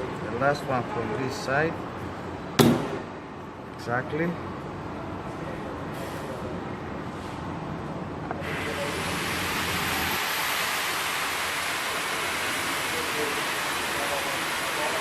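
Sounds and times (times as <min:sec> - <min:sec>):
steady hiss: 0:08.4 - 0:15.0.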